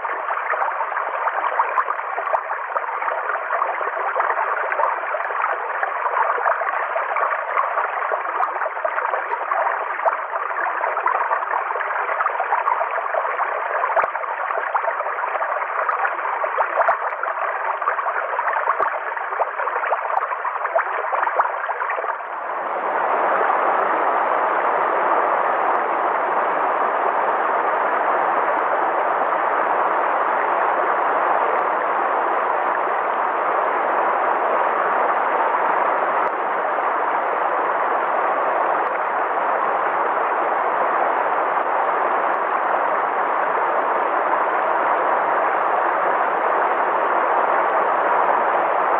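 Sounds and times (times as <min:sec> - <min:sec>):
small water plinks: 0:00.0 - 0:22.4
river water flowing and splashing: 0:00.0 - 0:25.7.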